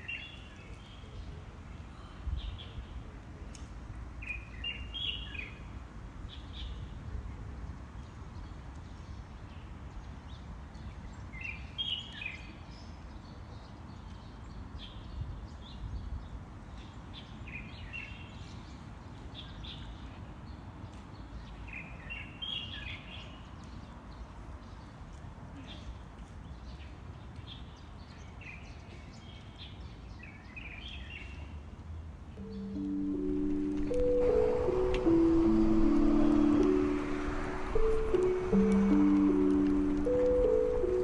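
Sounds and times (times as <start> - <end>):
low outdoor rumble: 32.4 - 41.0
songbird chirping: 32.4 - 41.0.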